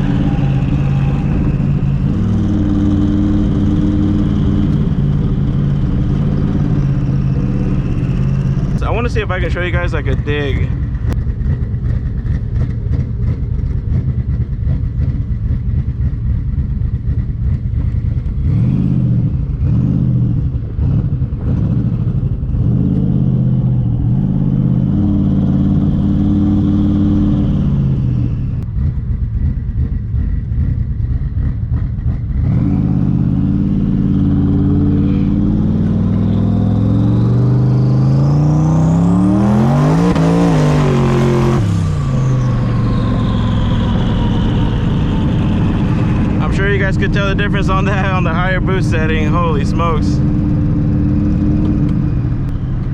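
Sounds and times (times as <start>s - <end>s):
faint turbo whistle: 0.0s - 3.0s
car engine revving: 0.0s - 52.9s.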